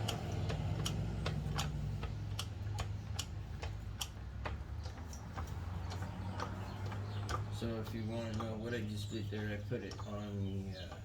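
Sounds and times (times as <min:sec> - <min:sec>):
sharp ticks: 0:00.0 - 0:11.0.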